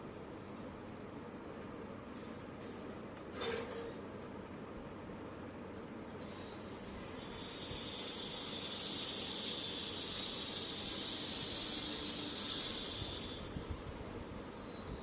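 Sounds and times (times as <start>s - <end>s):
steady hiss: 6.9s - 15.0s.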